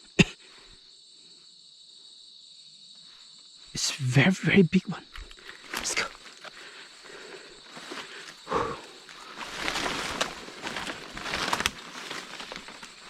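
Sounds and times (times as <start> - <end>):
faint high insect drone: 0.0 - 13.0
footsteps crunching through leaves: 7.6 - 13.0.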